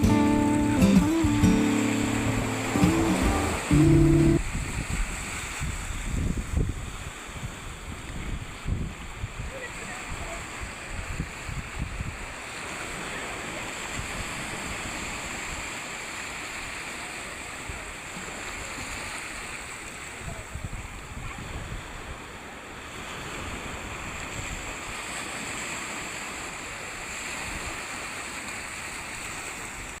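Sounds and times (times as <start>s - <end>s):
ocean waves breaking: 0.0s - 30.0s
wind rumbling on microphone: 4.3s - 12.3s.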